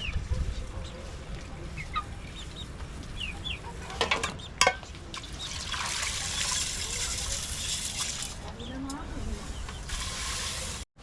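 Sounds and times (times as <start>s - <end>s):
chickens clucking and chirping: 0.0s - 7.9s.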